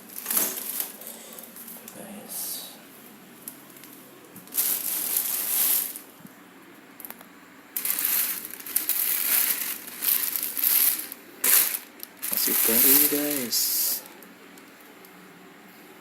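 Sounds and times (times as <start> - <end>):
packaging crinkling and rustling: 0.0 - 1.7, 3.4 - 6.1, 7.8 - 14.9.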